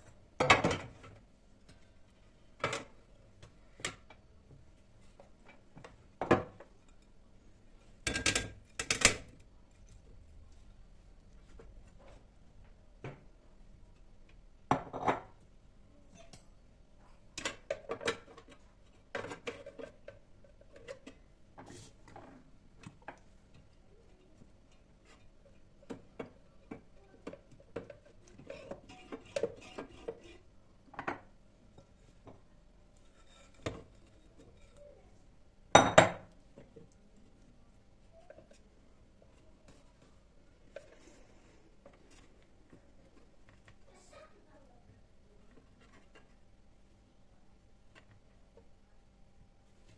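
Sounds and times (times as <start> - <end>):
dishes and cutlery clinking: 27.2 - 30.4.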